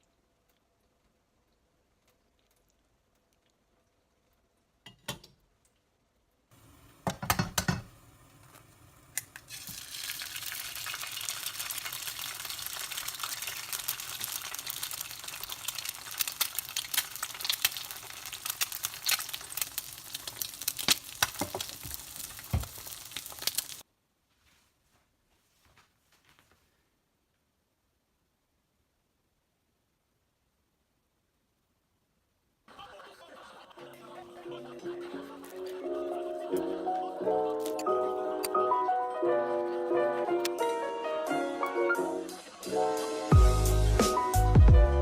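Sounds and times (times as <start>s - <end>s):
food sizzling in a pan: 6.5s - 23.8s.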